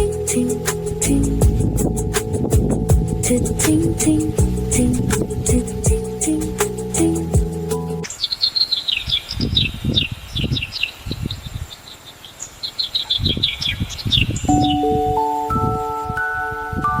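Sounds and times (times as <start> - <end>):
wind rumble on microphone: 0.0 - 7.5, 9.3 - 11.7, 13.2 - 17.0
chiming mallet music: 0.0 - 8.1, 14.5 - 17.0
quick high chirps: 0.0 - 8.1
soft music: 0.0 - 8.1, 14.5 - 17.0.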